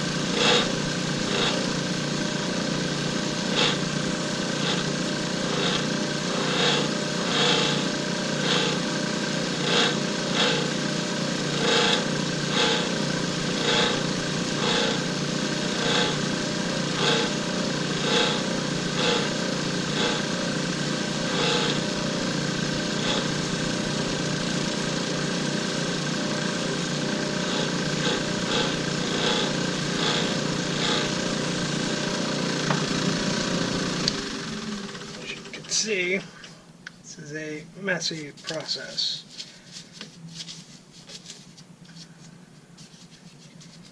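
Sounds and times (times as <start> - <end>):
turning tool scraping: 0.0 - 34.3
lathe motor running: 0.0 - 36.2.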